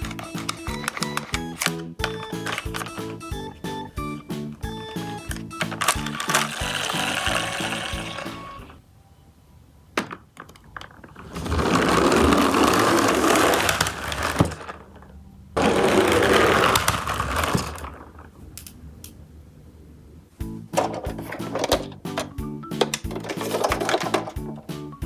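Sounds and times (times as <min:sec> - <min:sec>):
clicks and clatters: 0:00.0 - 0:03.2, 0:05.2 - 0:07.2, 0:20.8 - 0:24.5
toy truck whirring rattle: 0:00.0 - 0:03.5, 0:04.6 - 0:08.8, 0:11.2 - 0:15.0, 0:15.6 - 0:18.3.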